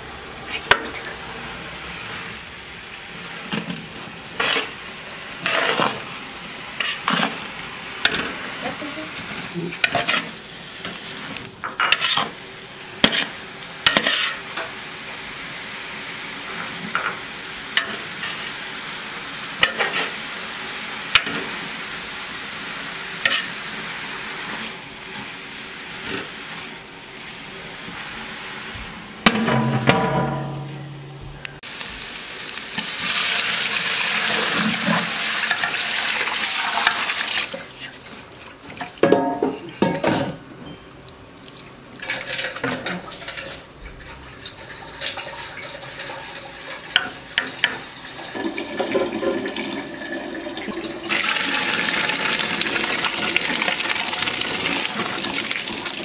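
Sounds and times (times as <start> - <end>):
greens sizzling in oil: 0.3 - 29.6, 31.6 - 39.9, 41.0 - 56.0
metal spoon scraping pot: 9.8 - 10.3, 11.8 - 12.3.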